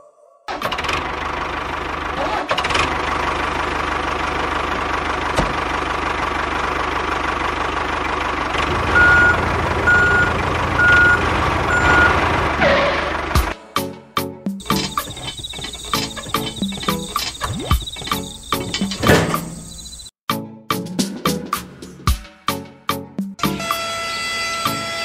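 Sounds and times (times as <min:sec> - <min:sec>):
truck engine rumble: 0:00.5 - 0:13.6, 0:14.6 - 0:20.1
reversing alarm beeps: 0:09.0 - 0:12.2.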